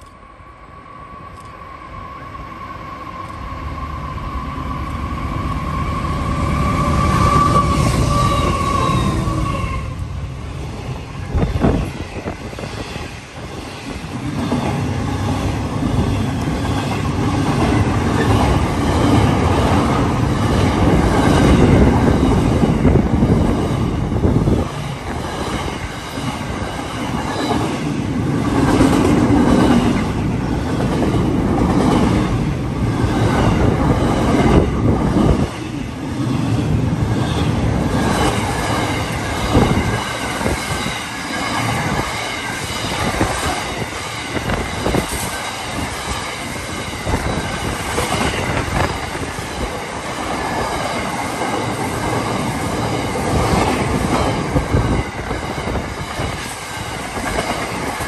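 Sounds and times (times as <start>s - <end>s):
locomotive high whine: 0.0s - 58.0s.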